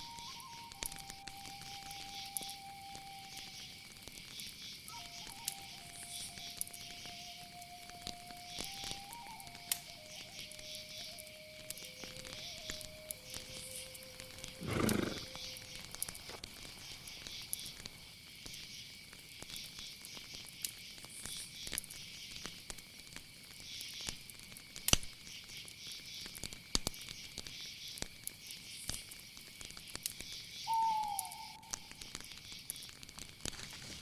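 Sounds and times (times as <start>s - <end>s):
falling whistled call: 0.0s - 3.8s, 4.9s - 15.7s, 30.6s - 32.0s
insect trill: 0.0s - 34.0s
soft clicks and crackles: 15.4s - 30.4s, 31.7s - 34.0s.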